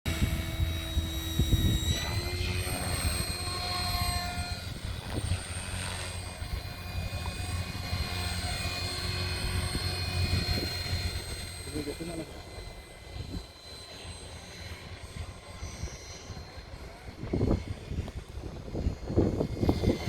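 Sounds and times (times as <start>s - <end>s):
low rotor thrum: 0.1s - 13.4s
model helicopter whine: 0.1s - 20.0s.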